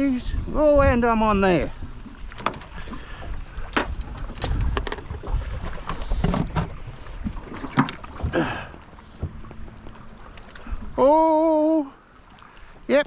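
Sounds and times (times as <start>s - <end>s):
wind buffeting microphone: 0.0s - 11.9s
water lapping against hull: 0.0s - 13.0s
low rumble: 8.1s - 12.4s.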